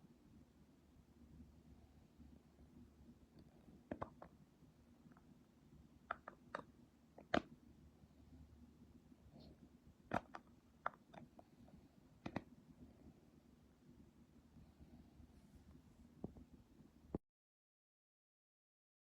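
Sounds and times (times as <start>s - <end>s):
faint clicks and taps: 3.3s - 4.4s, 6.0s - 7.6s, 9.4s - 11.5s, 12.2s - 12.6s, 15.7s - 17.2s.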